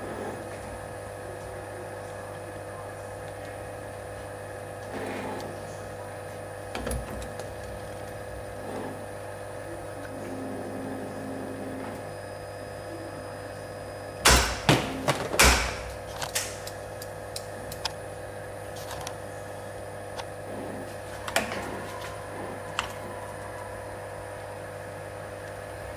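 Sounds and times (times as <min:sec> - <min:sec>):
spring-coiling machine humming: 0:00.0 - 0:25.9.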